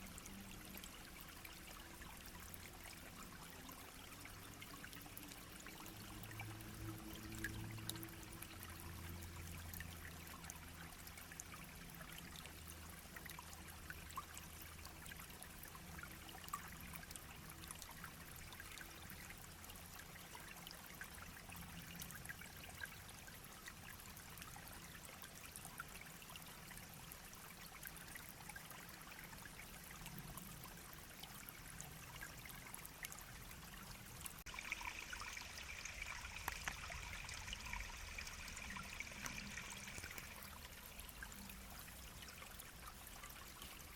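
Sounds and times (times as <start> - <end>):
brook babbling over stones: 0.0 - 43.9.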